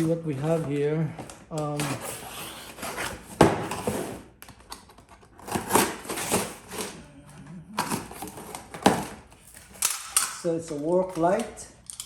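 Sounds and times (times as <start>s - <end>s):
packaging rustling: 7.8s - 9.8s.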